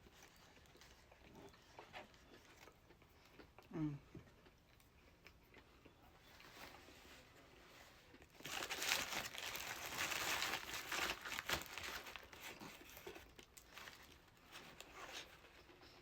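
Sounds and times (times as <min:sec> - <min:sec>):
paper wrapper crumpling: 0:08.4 - 0:15.2.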